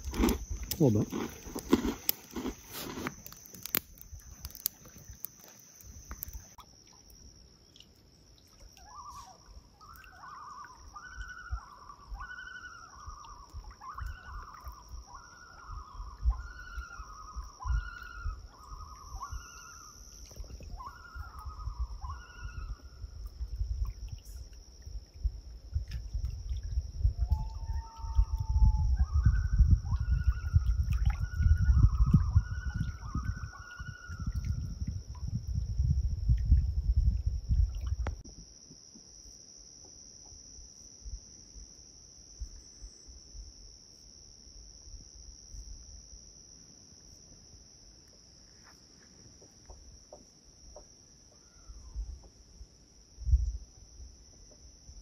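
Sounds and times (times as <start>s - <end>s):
low wind rumble: 13.0s - 38.2s.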